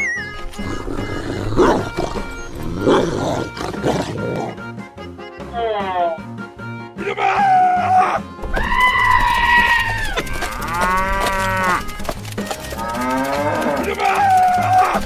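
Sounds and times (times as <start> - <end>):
cow mooing: 0.5 - 4.6, 9.5 - 11.9, 12.7 - 15.0.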